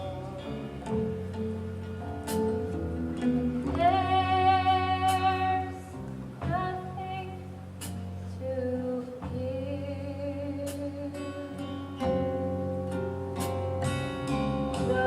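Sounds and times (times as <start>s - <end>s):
instrumental accompaniment: 0.0s - 15.0s
woman singing long notes: 3.4s - 7.5s, 14.8s - 15.0s.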